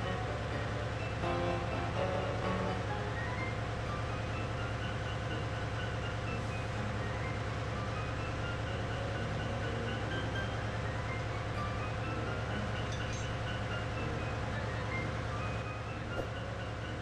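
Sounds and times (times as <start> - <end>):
ship engine room diesel drone: 0.0 - 17.0.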